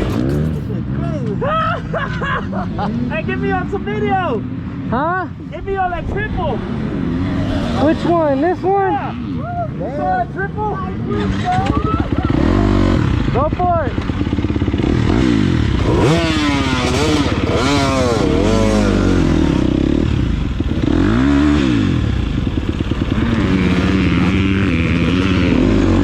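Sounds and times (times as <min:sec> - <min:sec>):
dirt bike engine revving: 0:00.0 - 0:01.0, 0:06.5 - 0:09.4, 0:10.0 - 0:26.0.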